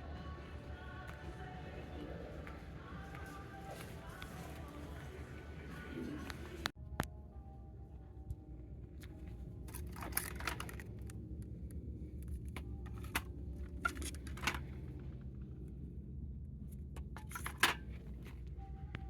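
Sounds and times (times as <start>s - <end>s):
steady low rumble: 0.0s - 19.0s
handling clicks and rustles: 9.0s - 15.9s, 16.6s - 19.0s.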